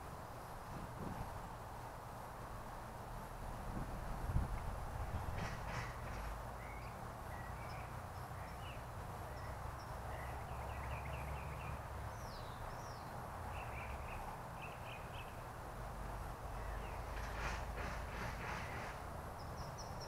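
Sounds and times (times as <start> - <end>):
low hum and hiss: 0.0 - 20.0
small birds chirping: 5.6 - 15.5, 16.5 - 20.0.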